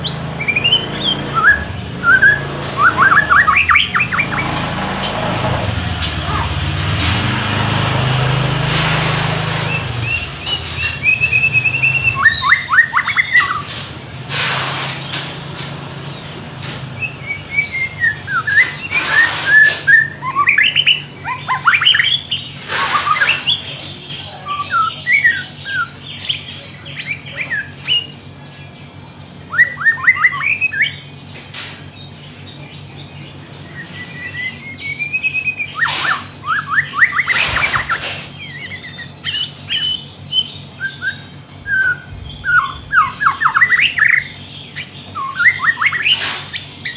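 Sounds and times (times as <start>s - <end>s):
steady low hum: 0.0s - 19.1s, 30.4s - 46.0s
songbird singing: 0.0s - 46.9s
bursts of noise: 41.3s - 45.6s.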